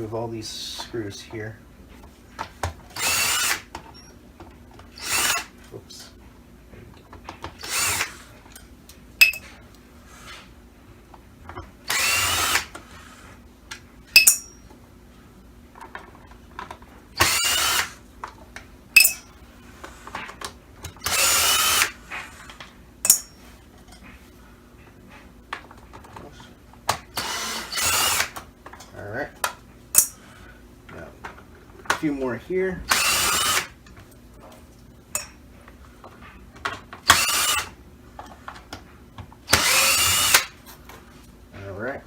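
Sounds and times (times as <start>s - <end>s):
electric screwdriver running: 2.9s - 3.7s, 5.0s - 5.5s, 7.6s - 8.2s, 11.9s - 12.7s, 17.2s - 18.0s, 21.0s - 22.0s, 27.2s - 28.4s, 32.9s - 33.7s, 37.0s - 37.8s, 39.5s - 40.6s.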